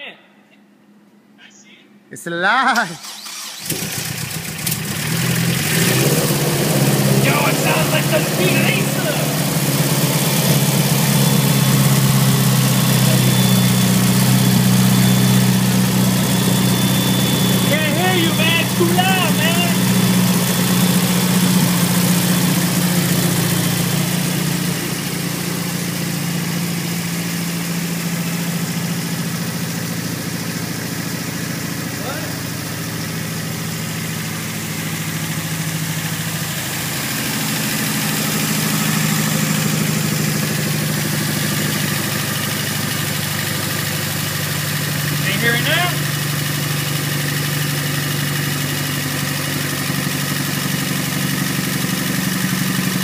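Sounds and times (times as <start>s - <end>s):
car engine idling: 3.0s - 53.0s.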